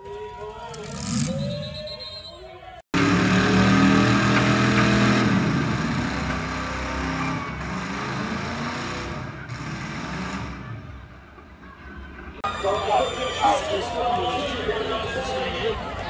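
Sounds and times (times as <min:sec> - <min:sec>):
car engine running loud: 0:03.0 - 0:10.9.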